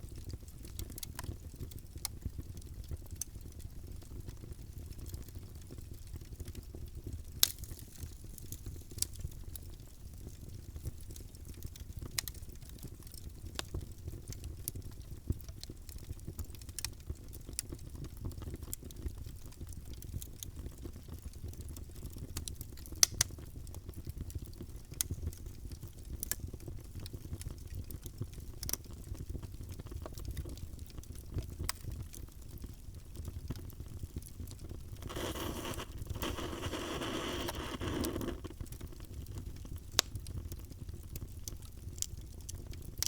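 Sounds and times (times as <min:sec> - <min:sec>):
fire crackling and popping: 0:00.1 - 0:43.0.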